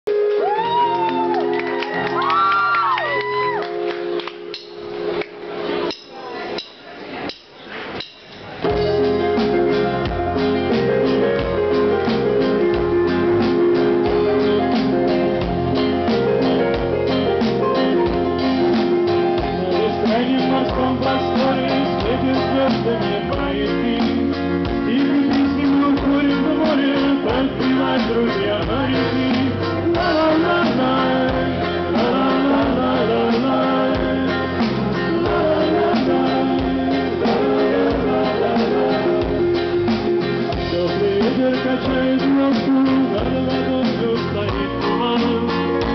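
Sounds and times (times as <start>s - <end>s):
live band playing: 0.1s - 45.9s
person singing: 17.7s - 45.9s.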